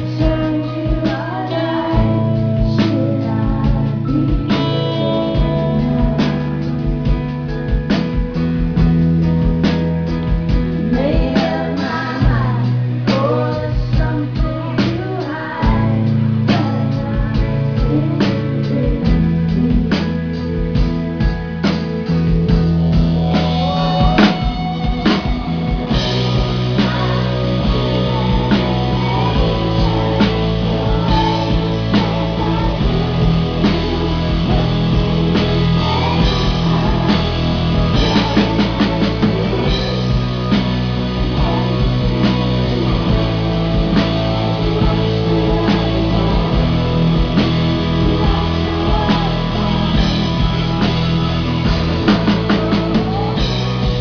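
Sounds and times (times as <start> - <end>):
woman singing: 0.0 - 7.7, 10.6 - 21.0, 23.2 - 54.0
live electro-rock band playing: 0.0 - 54.0
drum beat: 22.2 - 54.0.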